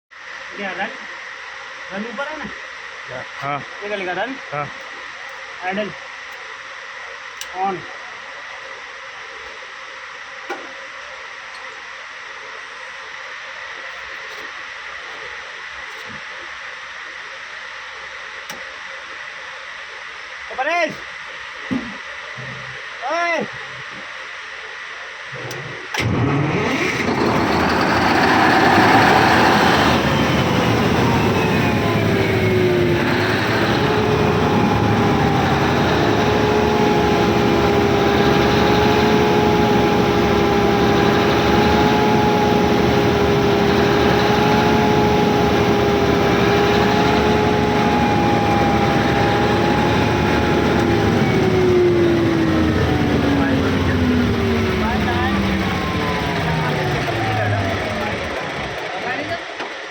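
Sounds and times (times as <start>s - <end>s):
engine whine: 25.3s - 59.9s
diesel generator engine running: 26.0s - 59.9s.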